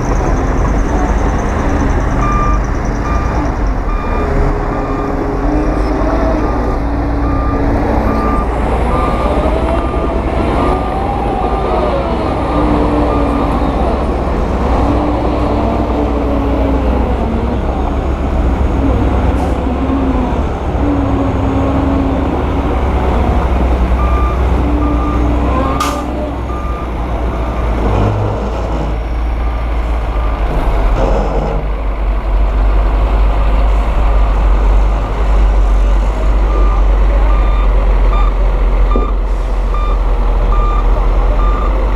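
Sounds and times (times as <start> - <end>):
heavy diesel machinery running: 0.0 - 41.9
reversing alarm beeping: 1.8 - 11.0, 24.0 - 27.6, 36.4 - 41.8.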